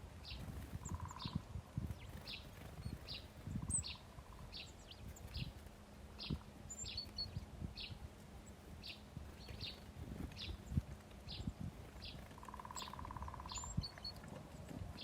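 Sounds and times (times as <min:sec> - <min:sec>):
small songbirds chirping: 0:00.0 - 0:15.0.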